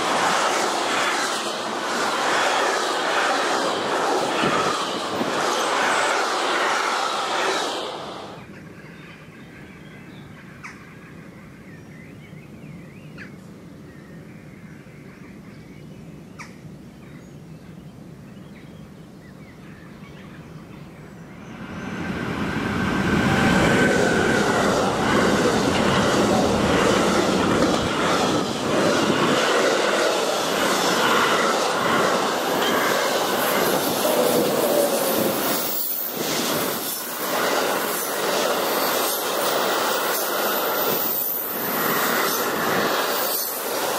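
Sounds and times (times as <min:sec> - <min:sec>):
high-speed train passing: 0:00.0 - 0:09.6, 0:20.2 - 0:43.9
freight train passing at speed: 0:00.0 - 0:11.8, 0:19.6 - 0:43.9.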